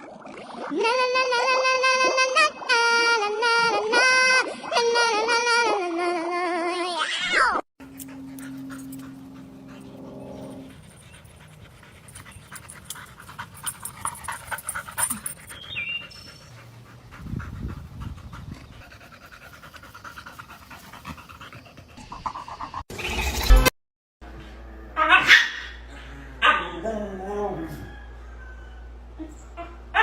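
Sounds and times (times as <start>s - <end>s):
dog panting: 7.8s - 22.6s
low hum: 7.8s - 23.7s.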